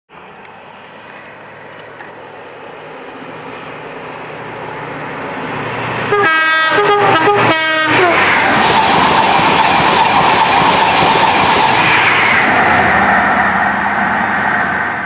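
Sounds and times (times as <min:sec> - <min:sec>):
train rumble: 0:00.2 - 0:15.0
two-tone train horn: 0:06.0 - 0:08.3.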